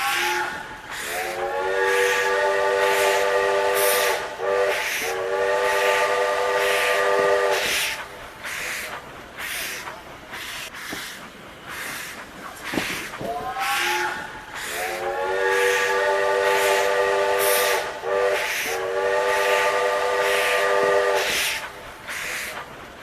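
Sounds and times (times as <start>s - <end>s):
steam train whistle: 0.0s - 8.8s, 13.3s - 22.6s
steam chuffing with hiss: 0.0s - 23.0s.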